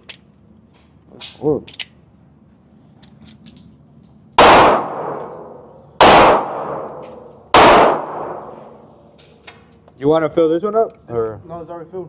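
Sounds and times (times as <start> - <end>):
handgun shots echoing: 4.4 - 8.6.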